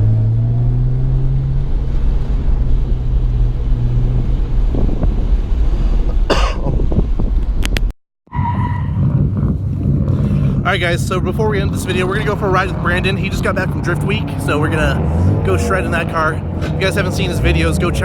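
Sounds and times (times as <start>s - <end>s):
car engine idling: 8.3s - 18.0s.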